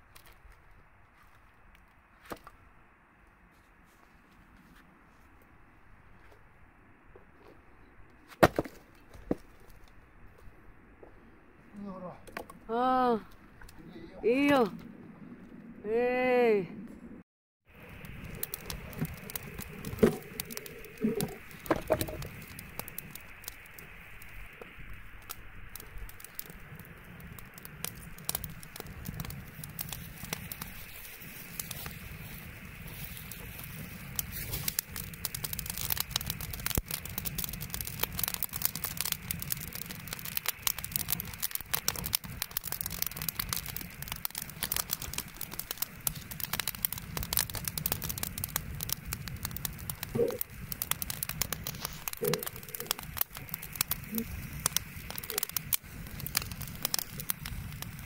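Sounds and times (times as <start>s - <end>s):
bonfire crackling and popping: 0.0s - 58.0s.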